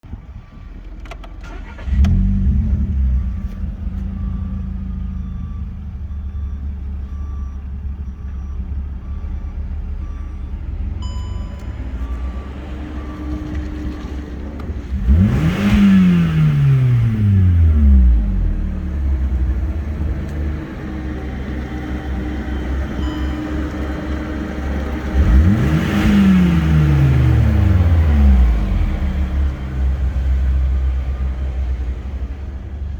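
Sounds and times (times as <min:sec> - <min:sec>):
car engine starting and idling: 0:00.1 - 0:32.9
car engine revving: 0:01.4 - 0:05.6, 0:12.0 - 0:31.6.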